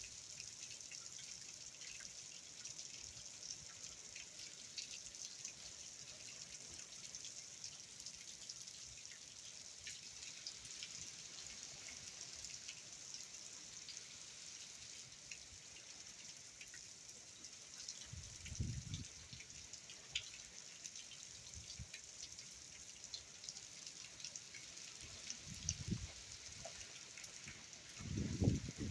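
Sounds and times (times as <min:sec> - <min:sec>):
steady rain falling: 0:00.0 - 0:28.9
water drips: 0:14.9 - 0:28.9.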